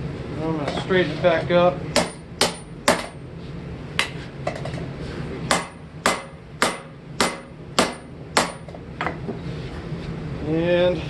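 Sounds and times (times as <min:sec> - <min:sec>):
hammer striking steel on anvil: 0:02.0 - 0:03.2, 0:05.5 - 0:08.8.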